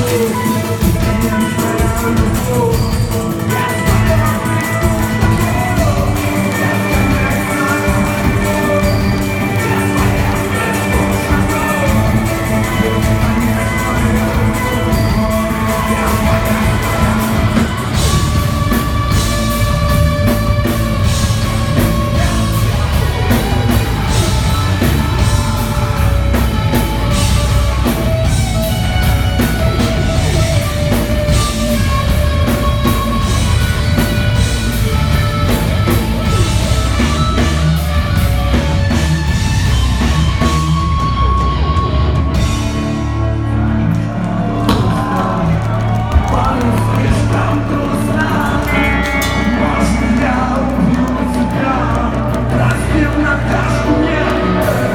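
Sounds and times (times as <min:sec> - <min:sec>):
heavy rock band playing: 0:00.0 - 0:54.9.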